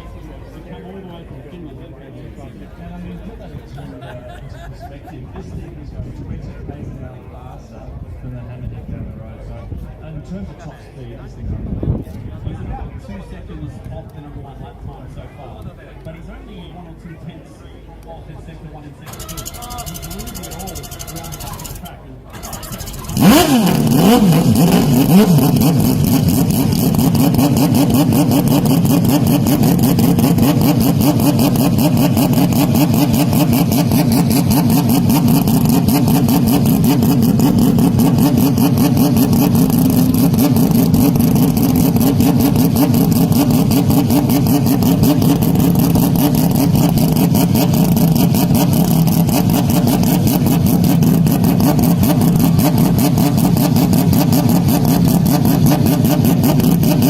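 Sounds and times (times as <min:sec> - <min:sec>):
distorted racing car engine: 0:19.1 - 0:57.0.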